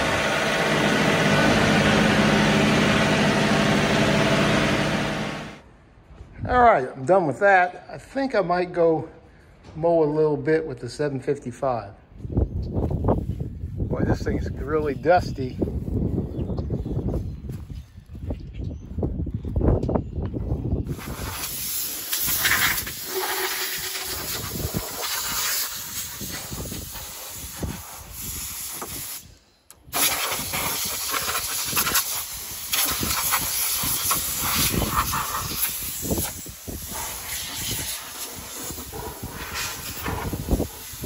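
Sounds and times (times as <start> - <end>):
compressed air blow gun hissing: 20.9 - 41.0.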